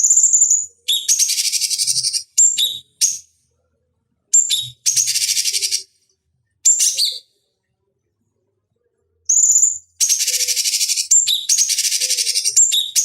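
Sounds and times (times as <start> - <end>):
songbird chattering: 9.3 - 13.0.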